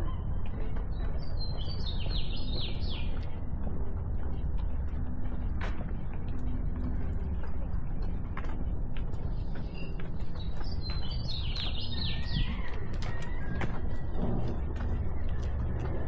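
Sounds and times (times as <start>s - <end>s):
songbird chirping: 0.0s - 3.6s, 9.4s - 13.6s
steady low rumble: 0.0s - 16.0s.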